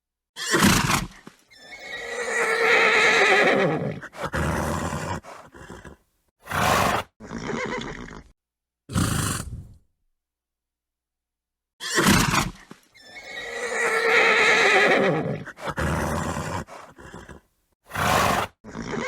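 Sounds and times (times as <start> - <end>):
horse whinnying: 0.4 - 8.3, 11.8 - 19.0
horse snorting: 0.5 - 8.3, 8.9 - 9.8, 12.0 - 19.0
horse nickering: 1.7 - 8.3, 8.9 - 9.8, 11.8 - 19.0.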